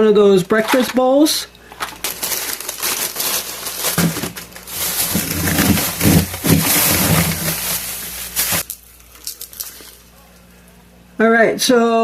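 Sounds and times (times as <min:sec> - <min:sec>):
plastic packages crinkling: 0:01.6 - 0:10.1.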